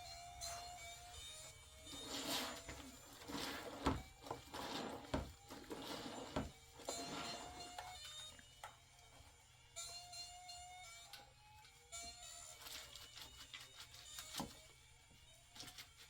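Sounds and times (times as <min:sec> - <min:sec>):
faint background music: 0:00.0 - 0:16.0
hand scraping strokes: 0:01.8 - 0:08.1.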